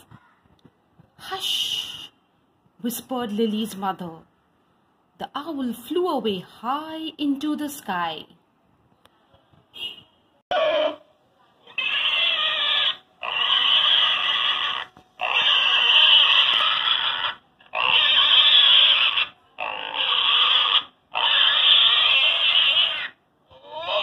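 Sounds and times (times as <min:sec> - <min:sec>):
pigs grunting and oinking: 0:11.7 - 0:24.0.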